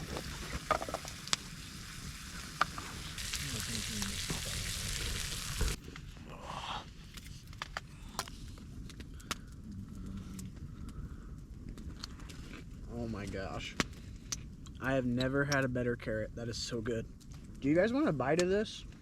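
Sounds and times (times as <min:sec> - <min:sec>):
clicks and crackles: 0:00.0 - 0:01.6, 0:07.0 - 0:15.8, 0:17.1 - 0:17.7
food sizzling in a pan: 0:00.0 - 0:05.8.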